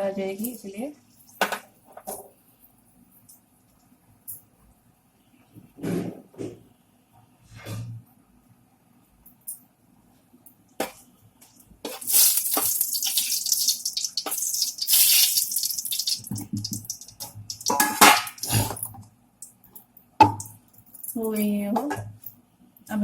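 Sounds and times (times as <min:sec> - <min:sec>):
chillies sizzling in hot oil: 0:11.9 - 0:19.0
spoon knocking against pan: 0:16.3 - 0:18.4.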